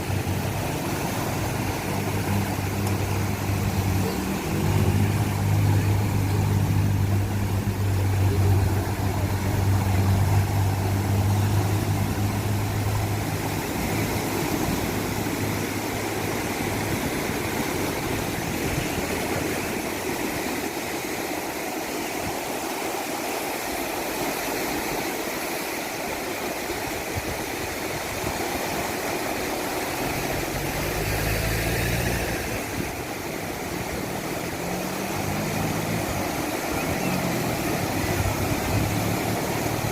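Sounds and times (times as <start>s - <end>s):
motor droning: 0.0s - 20.6s
surf breaking on a beach: 0.0s - 39.9s.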